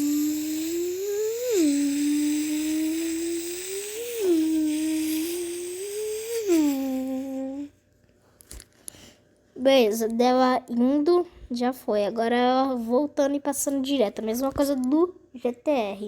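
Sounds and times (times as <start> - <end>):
person humming engine imitation: 0.0 - 7.7.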